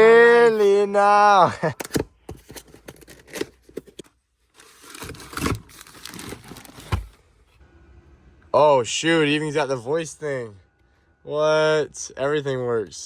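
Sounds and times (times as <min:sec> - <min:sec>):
rustling and crinkling handling: 0:02.3 - 0:07.2.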